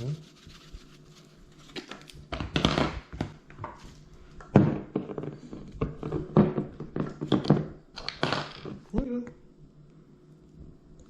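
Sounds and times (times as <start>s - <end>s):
kitchen items tapping and knocking: 4.4s - 8.8s.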